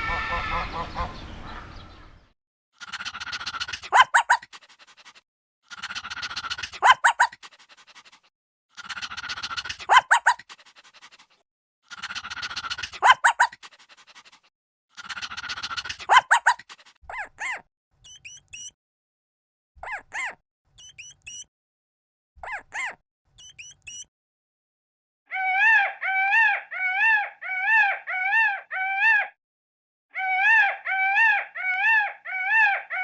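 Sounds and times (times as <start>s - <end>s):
rough breathy animal call: 2.8s - 18.7s, 22.4s - 24.0s.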